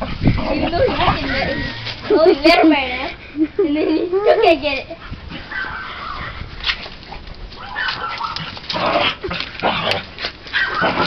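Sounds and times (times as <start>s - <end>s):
dog yelping: 5.4s - 6.5s, 7.6s - 8.6s, 10.5s - 11.0s
dog whining: 10.5s - 11.0s.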